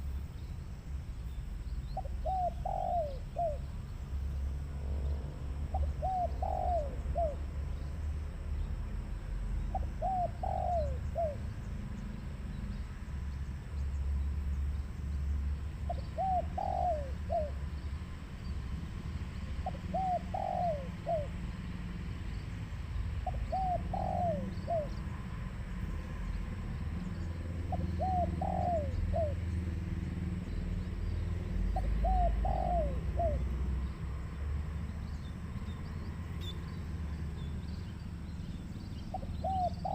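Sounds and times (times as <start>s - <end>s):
dove cooing: 2.0s - 3.7s, 5.7s - 7.5s, 9.7s - 11.6s, 15.9s - 17.6s, 19.6s - 21.4s, 23.2s - 25.0s, 27.6s - 29.5s, 31.7s - 33.6s, 39.1s - 39.9s.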